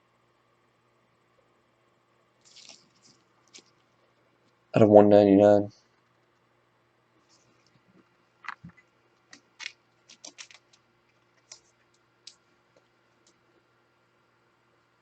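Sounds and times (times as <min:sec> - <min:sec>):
trading cards being handled: 0:02.4 - 0:03.8, 0:08.4 - 0:13.4.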